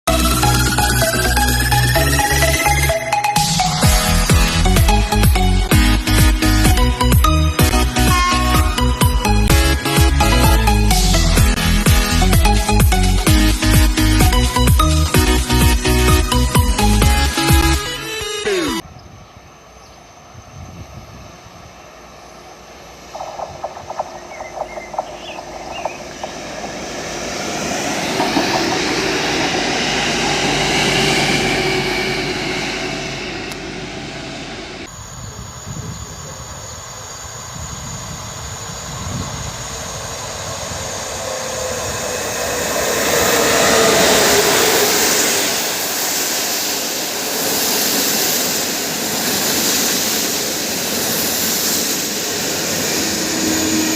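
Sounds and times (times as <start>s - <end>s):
electric train passing: 0.1s - 53.9s
wheels clicking over rail joints: 23.2s - 29.8s.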